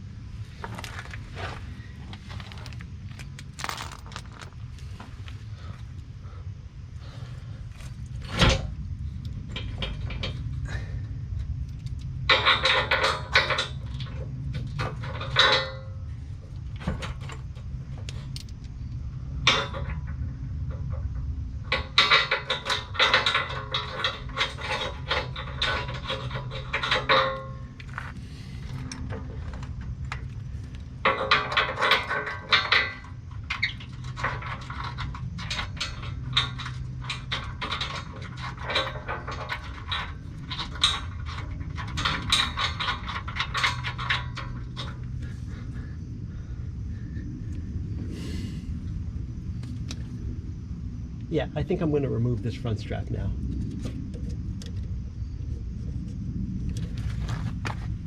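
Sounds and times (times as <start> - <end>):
steady low hum: 0.0 - 58.0
metal tools clinking and scraping: 0.6 - 5.3, 21.7 - 45.7.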